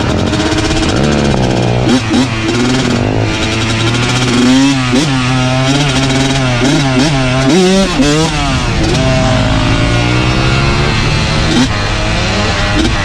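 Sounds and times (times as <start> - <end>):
dirt bike engine revving: 0.0 - 13.0
dirt bike engine running steadily: 0.0 - 13.0.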